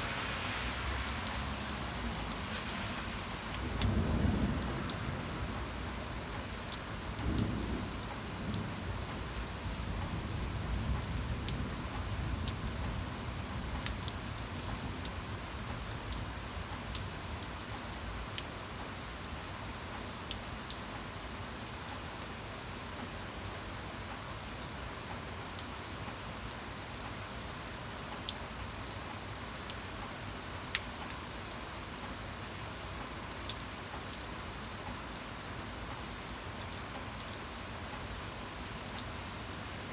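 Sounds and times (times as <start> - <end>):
steady rain falling: 0.0 - 39.9
low rumble of thunder: 0.7 - 14.4.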